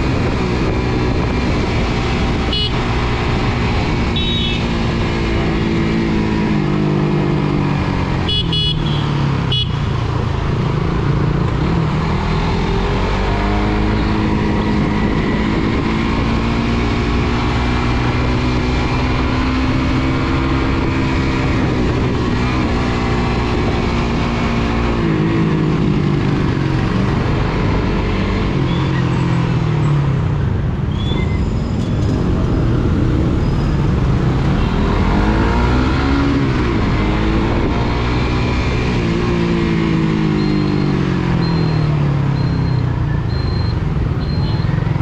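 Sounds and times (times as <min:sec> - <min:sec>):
motorcycle engine revving: 0:00.0 - 0:30.2, 0:31.9 - 0:45.0
wind and road noise: 0:00.0 - 0:45.0
horn toots: 0:02.4 - 0:02.9, 0:04.1 - 0:04.7, 0:08.3 - 0:09.9.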